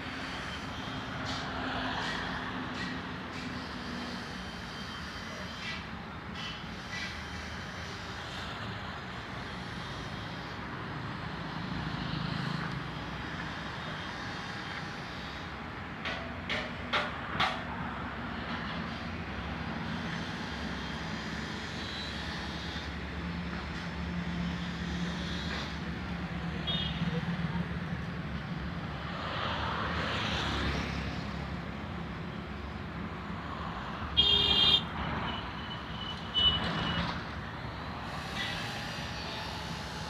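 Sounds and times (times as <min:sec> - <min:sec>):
engine drone: 0:36.6 - 0:40.0.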